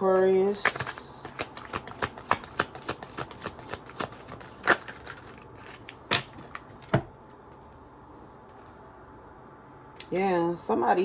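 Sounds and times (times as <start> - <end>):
cards being shuffled: 0.6 - 6.9.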